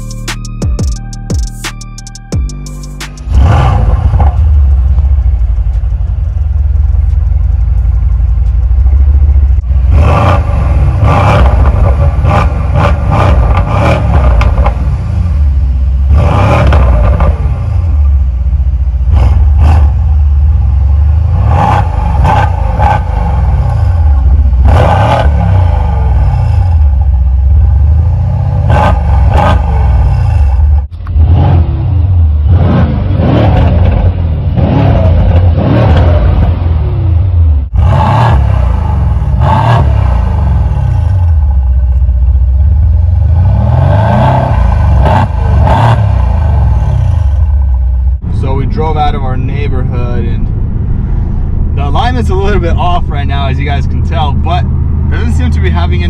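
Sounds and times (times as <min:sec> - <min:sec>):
car engine revving: 0:00.0 - 0:56.0
engine idle rumble: 0:01.8 - 0:16.2, 0:16.8 - 0:24.7, 0:25.7 - 0:31.2, 0:40.2 - 0:43.5, 0:46.2 - 0:56.0.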